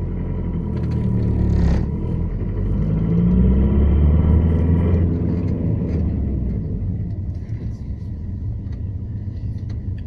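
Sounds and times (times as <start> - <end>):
diesel engine droning under load: 0.0 - 10.0.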